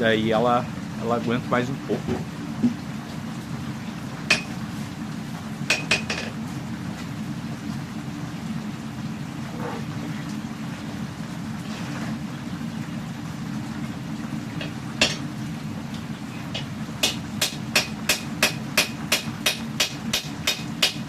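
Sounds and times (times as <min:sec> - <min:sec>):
gas forge burner humming: 0:00.0 - 0:21.0
hammer striking hot steel: 0:16.5 - 0:21.0.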